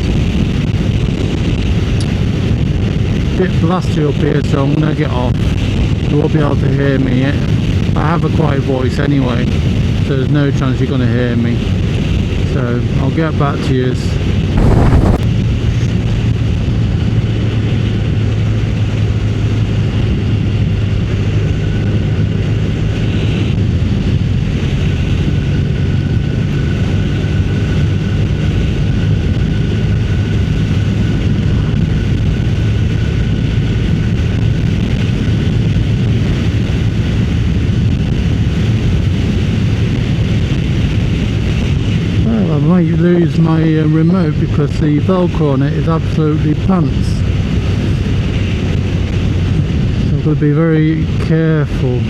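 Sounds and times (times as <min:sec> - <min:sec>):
wind rushing over microphone: 0:14.5 - 0:15.3
motorcycle engine running: 0:14.6 - 0:15.2.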